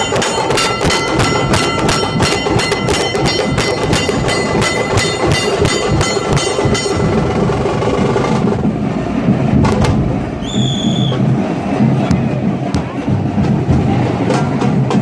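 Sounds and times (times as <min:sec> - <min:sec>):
dhol drums playing loud beat: 0:00.0 - 0:08.3
sharp high drum strokes: 0:00.0 - 0:08.7.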